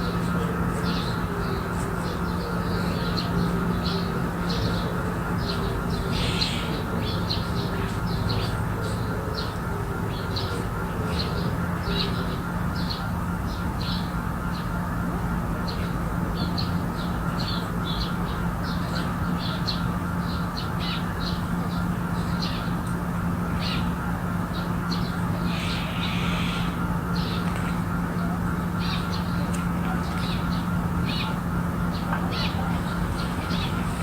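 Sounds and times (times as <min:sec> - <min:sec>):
steady low hum: 0:00.0 - 0:34.0
birds giving harsh calls: 0:00.1 - 0:09.5, 0:22.4 - 0:34.0.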